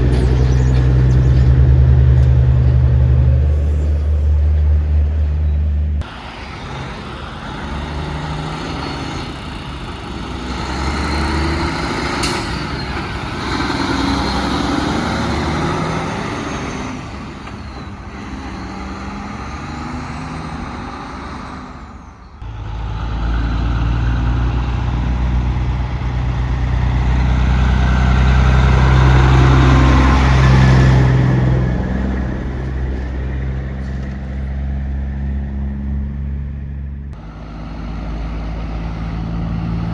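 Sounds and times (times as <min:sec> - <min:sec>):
deep engine hum: 0:00.0 - 0:06.1
diesel truck engines: 0:00.0 - 0:39.9
tyre and road noise: 0:00.0 - 0:39.9.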